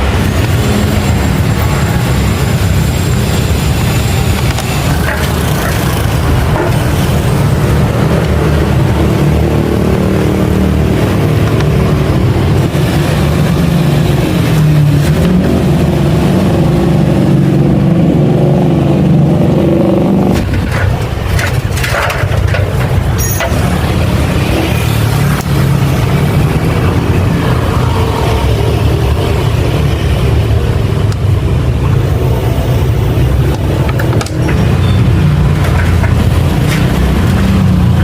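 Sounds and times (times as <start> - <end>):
clicks and knocks: 20.3 - 24.0, 33.5 - 34.8, 35.4 - 37.5.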